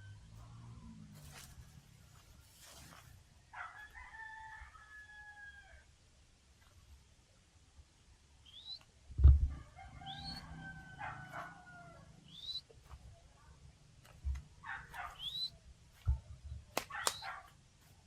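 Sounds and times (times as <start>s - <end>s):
rooster crowing: 3.5s - 5.9s, 9.5s - 12.3s
short rising bird chirps: 8.4s - 8.8s, 12.3s - 12.7s, 15.1s - 15.6s.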